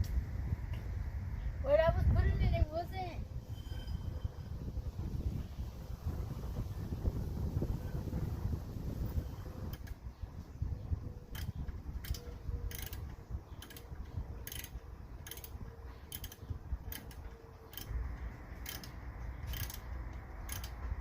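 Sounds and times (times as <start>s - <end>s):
wind rumbling on microphone: 0.0s - 21.0s
ratchet wrench clicking: 11.3s - 18.0s, 18.6s - 20.8s.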